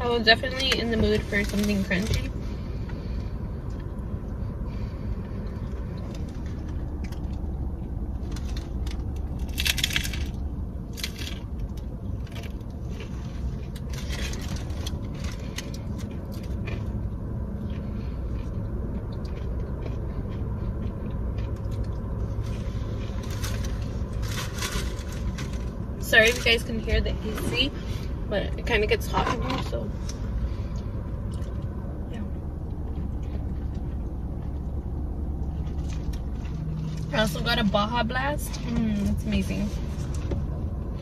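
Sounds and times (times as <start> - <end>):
air conditioning hum: 0.0 - 41.0
taco shell crunching: 1.4 - 26.6, 30.0 - 37.2.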